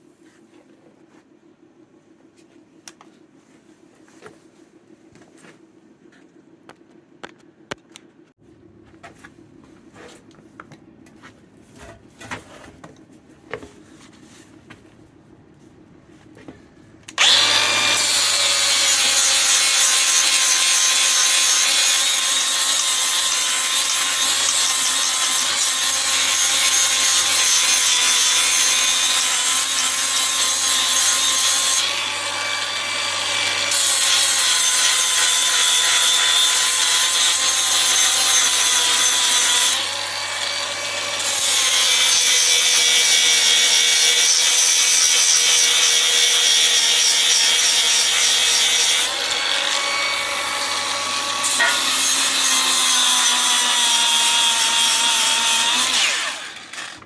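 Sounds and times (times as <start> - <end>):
angle grinder grinding steel: 17.2 - 57.0.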